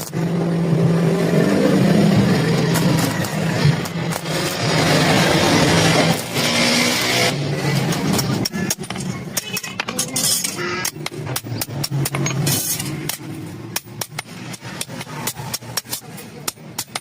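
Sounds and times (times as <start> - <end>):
hammer striking iron: 7.9 - 17.0.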